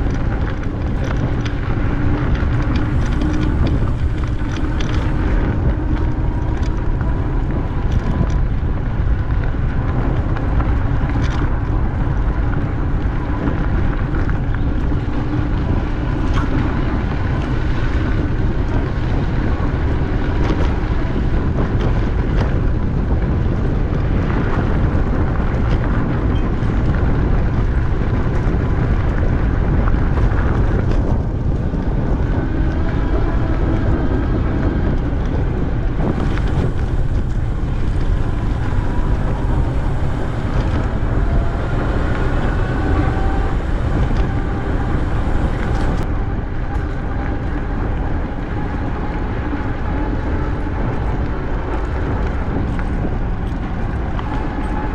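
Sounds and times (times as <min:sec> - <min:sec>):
wind buffeting microphone: 0:00.0 - 0:54.9
faint whine rising in pitch: 0:30.6 - 0:54.9.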